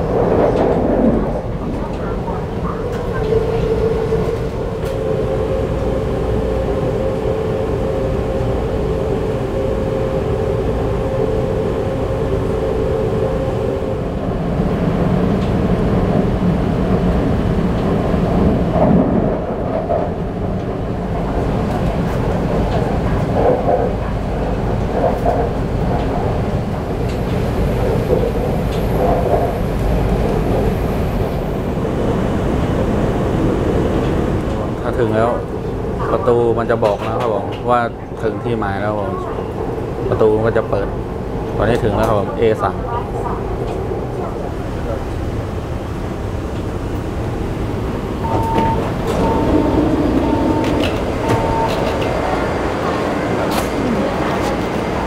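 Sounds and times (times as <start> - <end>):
train rumble and rail noise: 0.0 - 55.0
rising and falling whines: 47.7 - 54.4.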